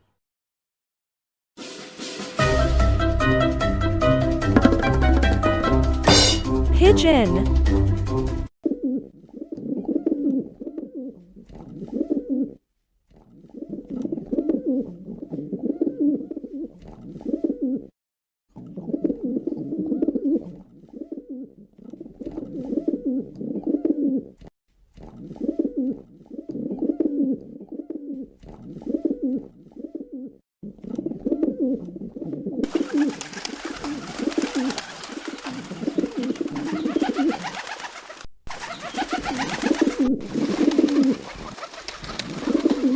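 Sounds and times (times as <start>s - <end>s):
pigeons cooing: 25.4s - 30.4s, 31.0s - 42.9s.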